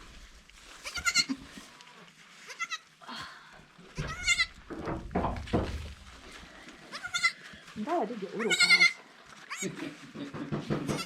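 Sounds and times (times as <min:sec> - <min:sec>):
rustling: 0:00.0 - 0:11.0
goat kids bleating: 0:00.8 - 0:01.6, 0:02.5 - 0:02.9, 0:03.9 - 0:04.6, 0:06.8 - 0:07.5, 0:08.4 - 0:09.8.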